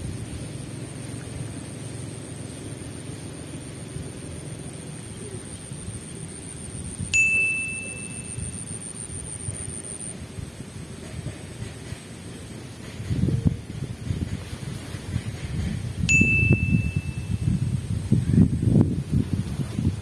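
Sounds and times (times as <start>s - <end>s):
wind rumble on microphone: 0.0s - 1.4s, 8.2s - 20.0s
bell-like ding: 7.1s - 8.8s, 16.1s - 17.5s.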